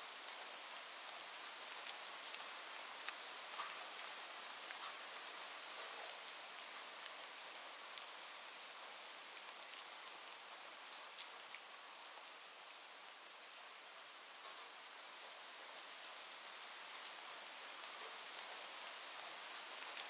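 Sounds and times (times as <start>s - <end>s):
rain falling: 0.0s - 20.0s
raindrop ticks: 3.0s - 4.1s, 4.7s - 5.0s.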